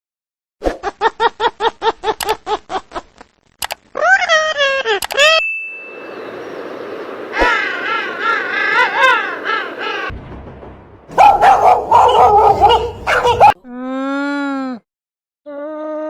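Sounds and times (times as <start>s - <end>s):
animal whining: 11.2s - 13.6s
animal yelping calls: 11.2s - 13.6s.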